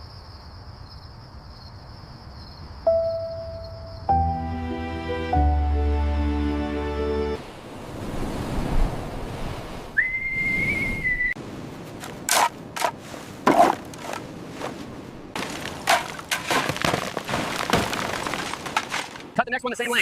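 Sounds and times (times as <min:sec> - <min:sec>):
background music: 0:02.9 - 0:07.4
held whistle note: 0:10.0 - 0:11.4.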